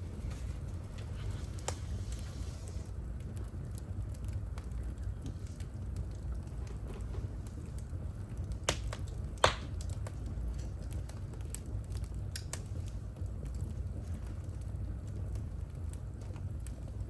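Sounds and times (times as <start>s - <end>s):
low steady rumble: 0.0s - 17.0s
wood fire crackling: 0.0s - 17.0s
sharp fire pops: 1.0s - 14.3s.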